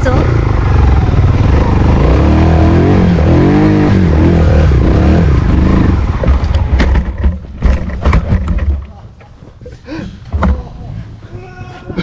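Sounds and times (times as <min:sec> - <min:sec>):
motorcycle engine revving: 0:00.0 - 0:08.7
sharp knocks: 0:06.2 - 0:09.0.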